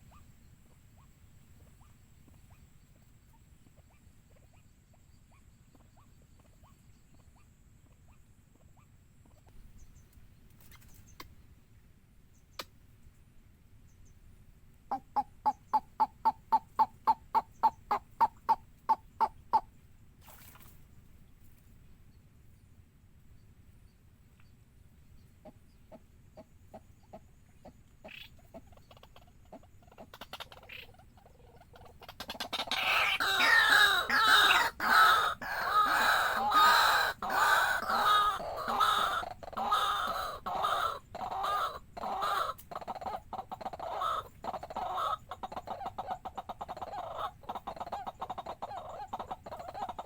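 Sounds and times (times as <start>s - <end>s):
chorus of overlapping bird calls: 14.9s - 19.8s, 25.2s - 50.0s
waterhen calling: 14.9s - 20.8s, 28.0s - 50.0s.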